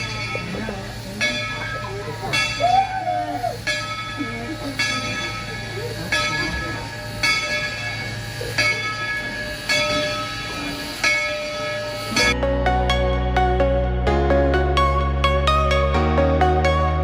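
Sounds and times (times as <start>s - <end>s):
train rumbling: 0.0s - 12.4s
locomotive bell ringing: 0.0s - 13.5s.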